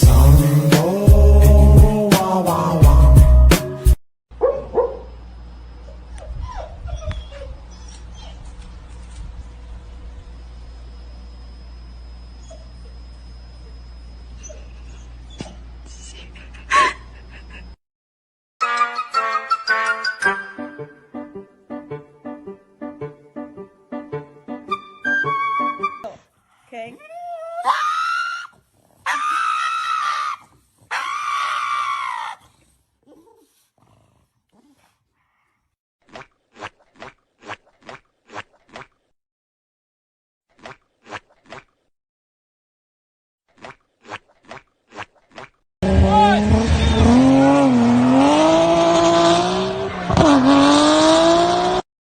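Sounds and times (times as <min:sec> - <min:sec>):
pet animal screaming: 0:27.4 - 0:32.6.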